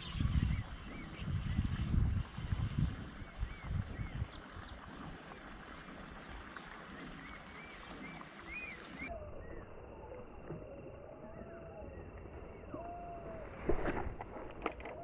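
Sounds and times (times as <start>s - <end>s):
wind buffeting microphone: 0.0s - 8.6s
birds chirping: 0.0s - 13.5s.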